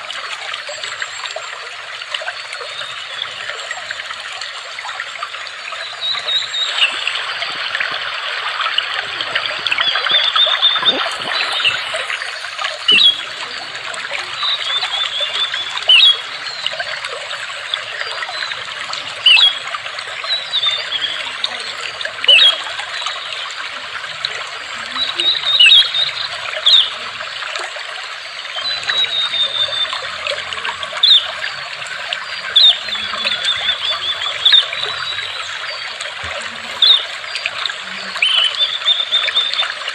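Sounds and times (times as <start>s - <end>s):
water trickling and babbling: 0.0s - 39.9s
bird chirping: 10.4s - 13.7s, 31.0s - 37.3s.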